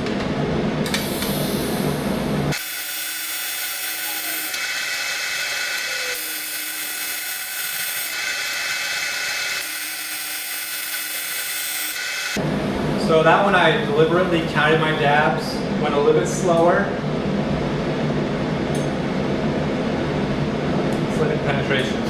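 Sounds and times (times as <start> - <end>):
welding arc buzzing: 0.8 - 12.4.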